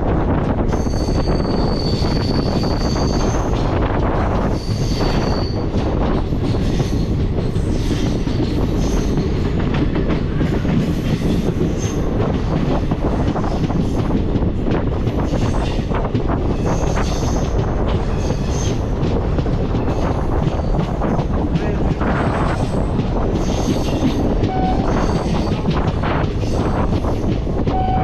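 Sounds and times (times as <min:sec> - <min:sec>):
train wheels rumbling on track: 0:00.0 - 0:28.0
high wheel squeal: 0:00.7 - 0:03.6, 0:04.4 - 0:05.7.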